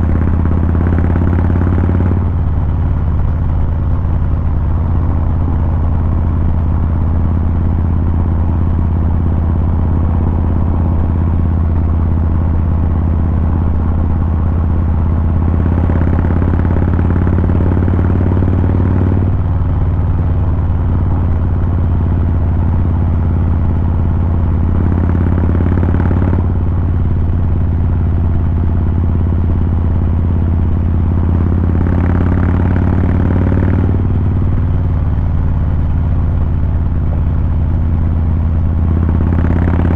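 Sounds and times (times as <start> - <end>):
motorcycle throttle revs: 0.0 - 3.1, 15.0 - 19.6, 20.2 - 34.6, 37.3 - 39.9
motorcycle engine running: 0.0 - 39.9.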